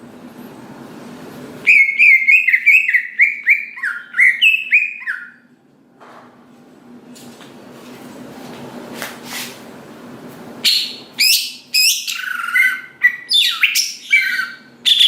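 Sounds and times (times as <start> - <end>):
bird singing whistled notes: 1.6 - 5.4, 10.6 - 15.0.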